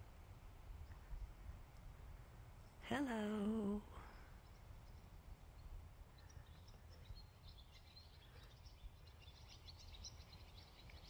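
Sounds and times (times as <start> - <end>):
faint birds chirping: 0.0 - 11.0
low steady rumble: 0.0 - 11.0.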